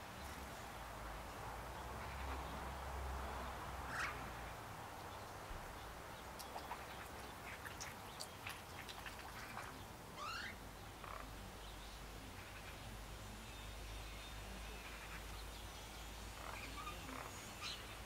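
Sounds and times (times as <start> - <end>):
wild birds calling: 3.8 - 11.7.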